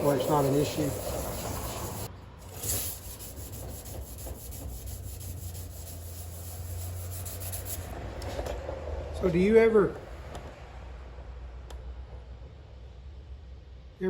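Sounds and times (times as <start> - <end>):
sandpaper rubbing on sheet metal: 0.0 - 8.0.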